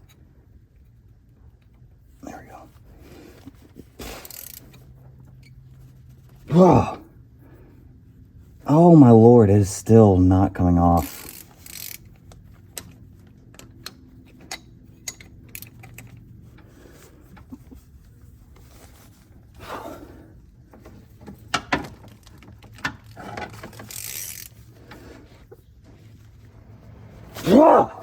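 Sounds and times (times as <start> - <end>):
wrench clicking and clattering: 4.2 - 4.8, 11.0 - 16.2, 21.3 - 25.1.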